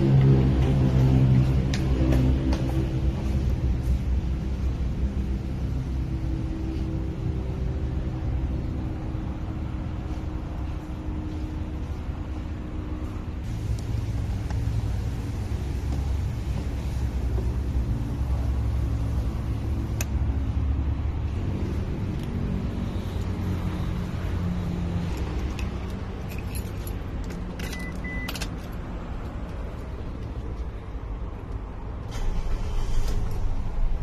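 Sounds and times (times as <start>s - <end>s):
car engine humming: 0.0s - 34.0s
keys jangling: 25.1s - 28.8s.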